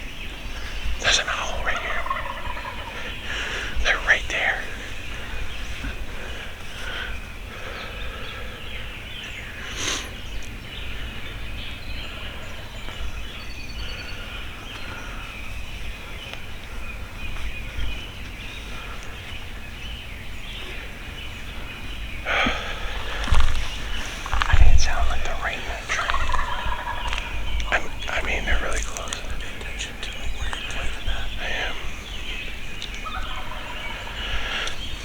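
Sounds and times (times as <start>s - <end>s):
songbirds chirping: 0.0s - 35.0s
wild turkeys gobbling: 1.0s - 11.4s, 21.9s - 35.0s.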